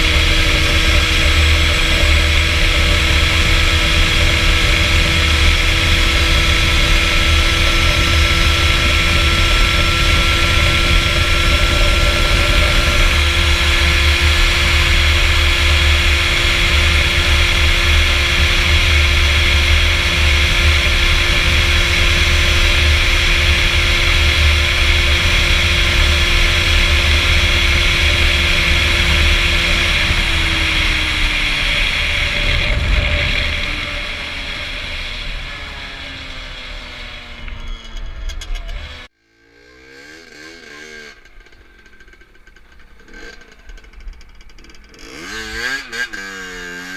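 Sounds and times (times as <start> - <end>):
motorcycle engine at high revs: 0.0 - 46.9
wind rumbling on microphone: 25.0 - 38.2.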